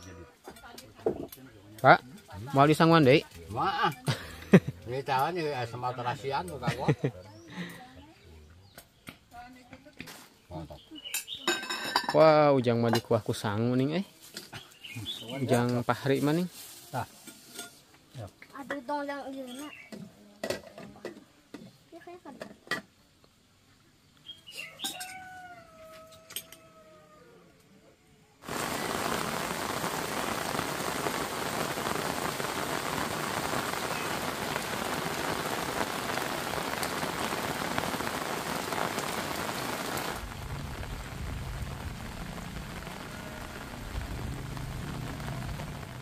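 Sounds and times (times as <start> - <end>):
heavy rain: 28.4 - 46.0
low rumble: 38.4 - 46.0.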